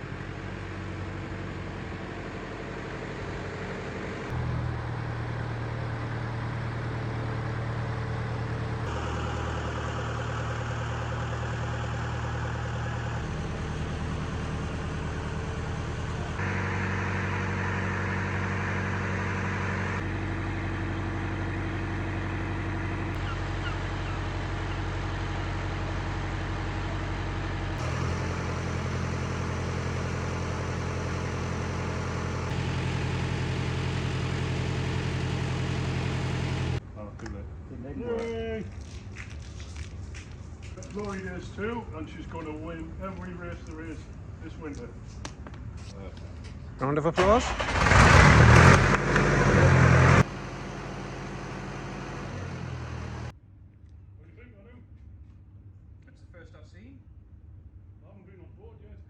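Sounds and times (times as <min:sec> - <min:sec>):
engine idling hum: 0:00.0 - 0:37.1, 0:47.2 - 0:53.4.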